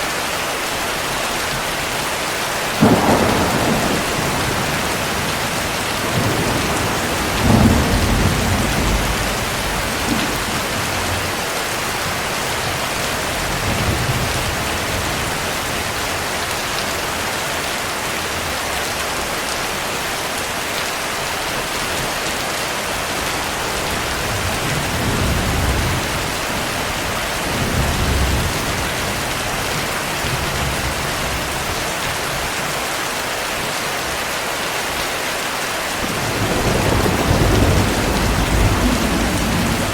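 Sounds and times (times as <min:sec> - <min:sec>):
heavy rain: 0:00.0 - 0:39.9
thunder rolling: 0:02.8 - 0:16.0, 0:22.9 - 0:31.6, 0:36.0 - 0:39.9.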